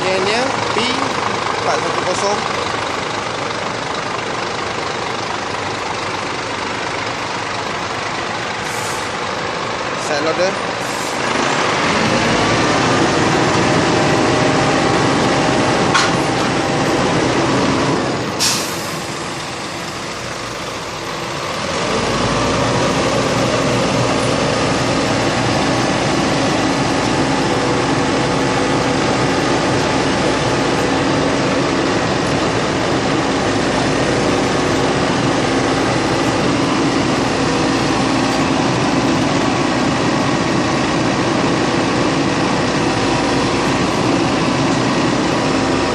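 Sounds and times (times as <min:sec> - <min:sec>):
truck engine running: 0:00.0 - 0:45.9
air hiss: 0:18.4 - 0:19.1.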